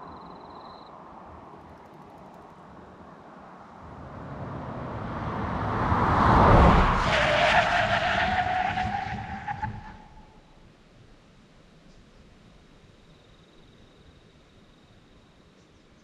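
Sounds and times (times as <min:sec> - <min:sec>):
steady engine note rising: 0:03.8 - 0:07.1
car accelerating past: 0:03.8 - 0:10.3.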